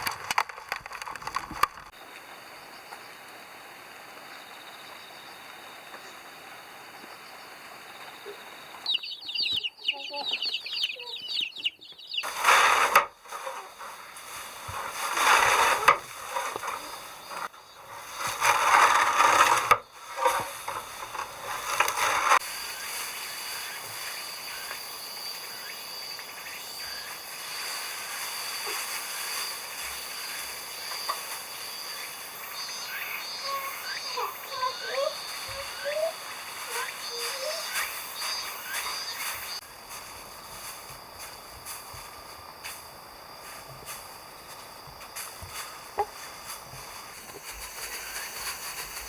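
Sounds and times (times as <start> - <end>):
chickens calling: 8.0 - 23.0, 32.1 - 39.6, 45.5 - 49.0.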